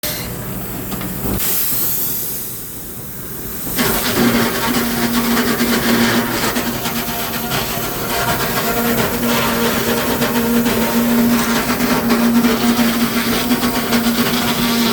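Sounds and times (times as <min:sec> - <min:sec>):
sharp hiss: 0:01.3 - 0:05.3
steady machine hum: 0:02.1 - 0:14.9
clattering sawmill machine: 0:03.8 - 0:14.9.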